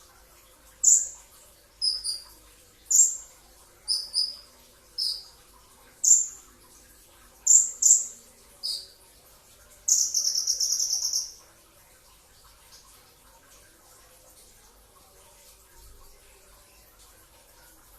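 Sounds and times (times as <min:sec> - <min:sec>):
sunbird chirping and trilling: 0:00.8 - 0:01.2, 0:01.8 - 0:02.3, 0:02.9 - 0:03.3, 0:03.9 - 0:05.3, 0:06.0 - 0:06.4, 0:07.4 - 0:09.0, 0:09.9 - 0:11.4.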